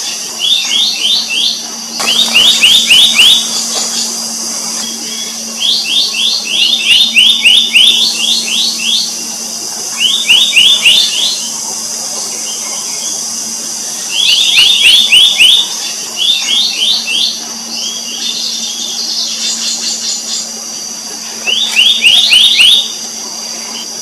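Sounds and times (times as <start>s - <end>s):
faint low hum: 0.0s - 24.0s
high-pitched drone: 0.0s - 24.0s
bird whistled calls: 0.4s - 4.2s, 4.8s - 9.2s, 10.0s - 11.6s, 14.1s - 20.5s, 21.4s - 22.9s.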